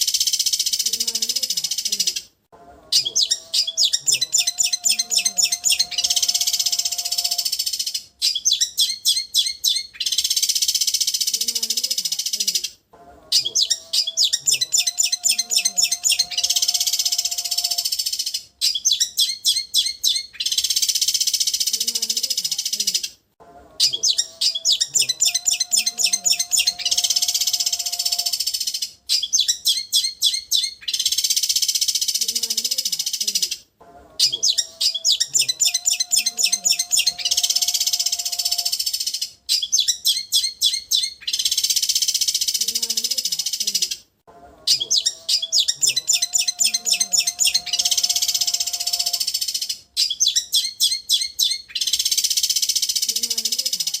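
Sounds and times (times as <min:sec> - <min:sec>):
bird chattering notes: 0:02.9 - 0:12.7, 0:13.4 - 0:23.1, 0:23.8 - 0:33.6, 0:34.2 - 0:44.0, 0:44.7 - 0:54.0.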